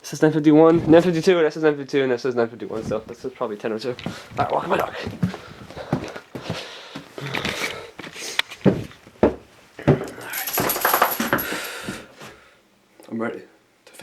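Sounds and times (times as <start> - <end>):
small metal objects jingling: 10.0 - 11.9.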